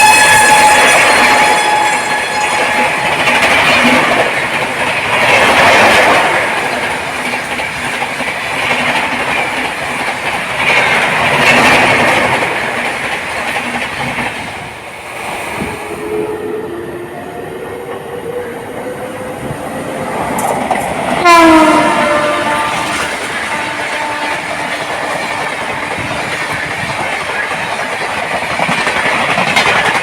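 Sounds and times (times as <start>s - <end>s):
train horn: 0.0s - 4.2s, 15.6s - 18.0s, 21.2s - 26.6s
train passing at high speed: 0.0s - 30.0s.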